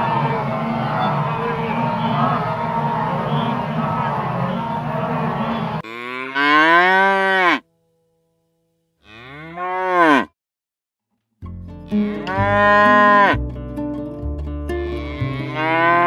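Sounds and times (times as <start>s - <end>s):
busy noisy background: 0.0s - 5.8s
cow mooing: 5.8s - 7.6s, 9.0s - 10.3s, 11.9s - 13.4s, 14.8s - 16.0s.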